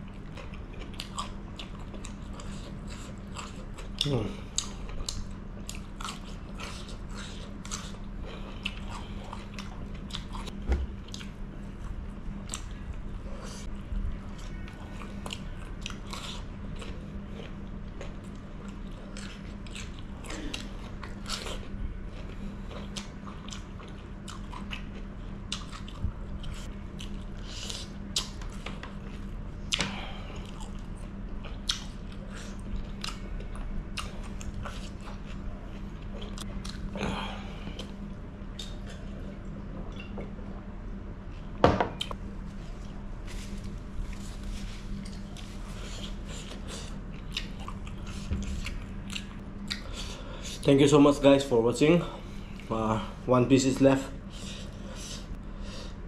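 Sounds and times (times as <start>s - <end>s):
crunchy chewing: 0.0s - 40.4s, 41.3s - 50.7s
steady low hum: 0.0s - 56.0s.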